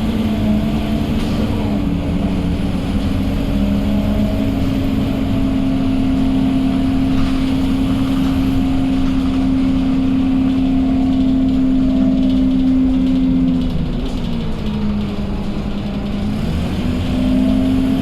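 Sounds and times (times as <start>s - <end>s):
bus diesel engine droning: 0.0s - 18.0s.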